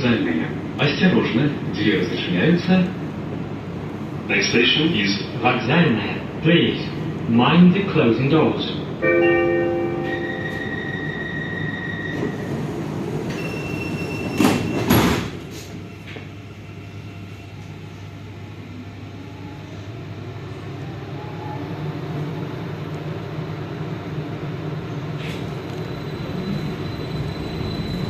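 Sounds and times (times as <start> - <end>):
train rumble: 0.0 - 28.0
door warning tone: 9.6 - 12.5
train doors shutting: 9.6 - 18.2, 24.8 - 28.0.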